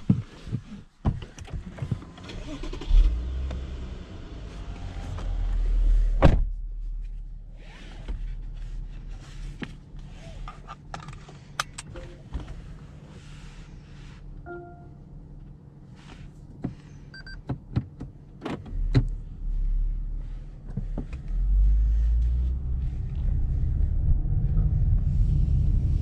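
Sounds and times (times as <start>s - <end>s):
car engine rumbling: 0.0s - 26.0s
car door shutting: 4.6s - 6.5s.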